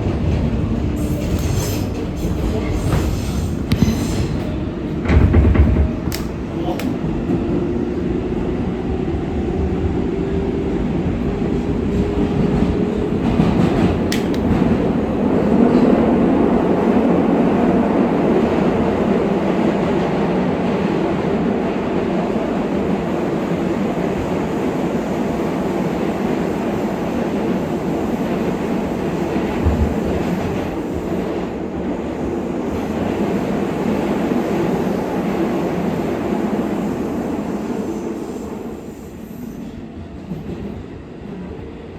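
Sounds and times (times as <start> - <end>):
subway train rumbling: 0.0 - 41.9
sharp click: 6.1 - 7.0, 14.1 - 14.6.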